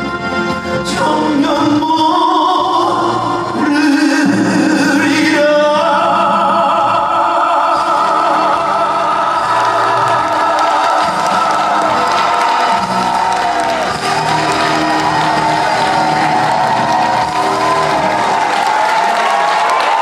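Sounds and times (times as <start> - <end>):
live band playing: 0.0 - 4.8, 7.8 - 20.0
man singing: 0.0 - 13.1.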